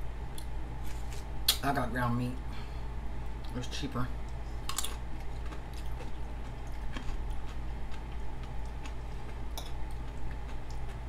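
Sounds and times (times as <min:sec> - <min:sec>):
steady low hum: 0:00.0 - 0:11.0
person chewing food: 0:04.2 - 0:11.0.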